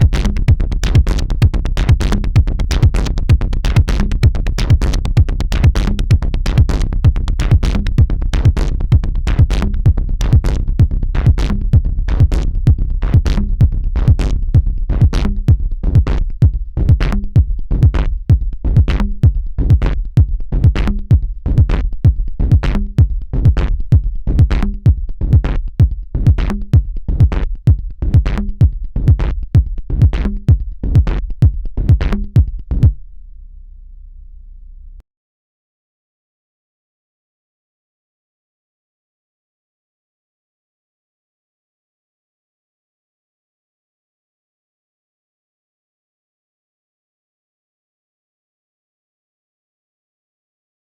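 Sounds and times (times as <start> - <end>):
faint low tone: 32.4 - 35.0.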